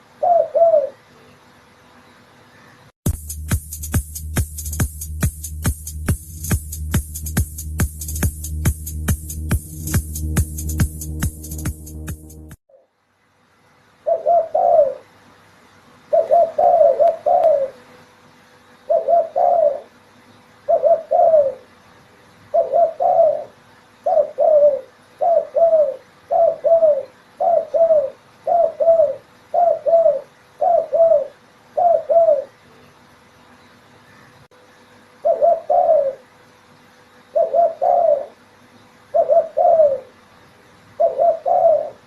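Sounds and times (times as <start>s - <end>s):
dove cooing: 0.0s - 1.1s, 14.0s - 15.1s, 16.1s - 17.9s, 18.9s - 20.0s, 20.6s - 21.7s, 22.5s - 32.6s, 35.2s - 36.3s, 37.3s - 38.4s, 39.1s - 40.2s, 41.0s - 42.0s
electronic music: 3.1s - 12.6s.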